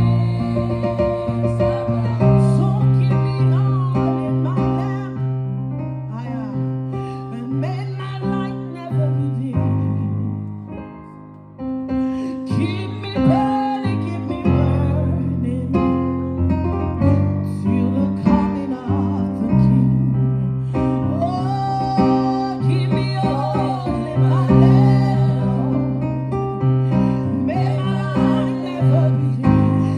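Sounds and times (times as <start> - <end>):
voices singing: 0.0 - 4.8, 21.9 - 26.2, 26.9 - 29.9.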